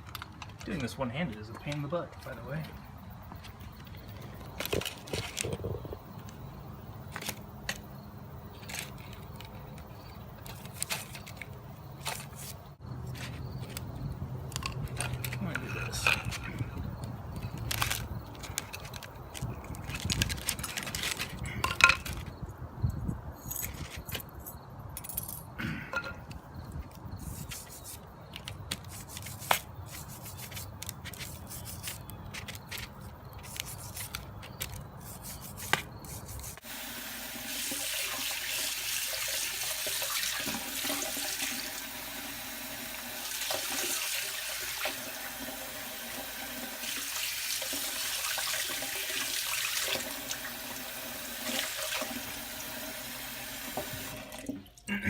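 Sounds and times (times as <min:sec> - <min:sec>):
scraping metal with brush: 0:27.2 - 0:36.6
water tap running: 0:36.6 - 0:54.7.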